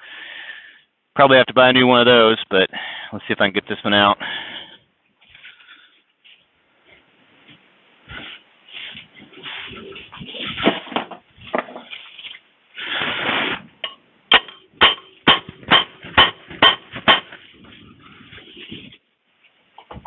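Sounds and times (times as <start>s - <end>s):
scraping rustle: 5.2s - 13.8s, 16.9s - 20.0s
sharp metallic knocks: 13.8s - 17.4s.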